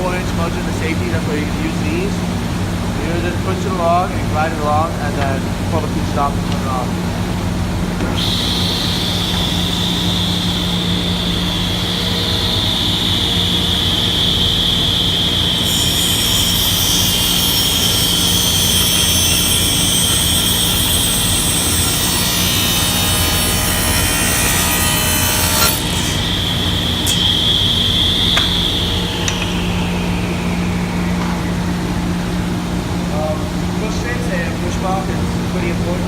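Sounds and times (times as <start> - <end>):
table saw blade whine: 8.0 - 35.0.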